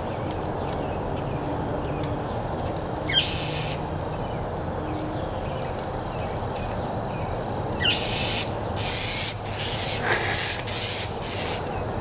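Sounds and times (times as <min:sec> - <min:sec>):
bird scolding calls: 0:03.1 - 0:03.8, 0:07.8 - 0:11.7.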